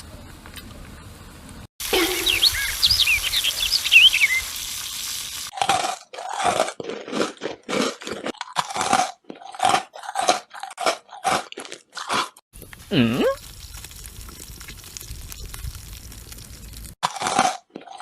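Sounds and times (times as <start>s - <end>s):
high chirps: 1.9s - 4.7s
loud crunchy chewing: 5.5s - 18.0s.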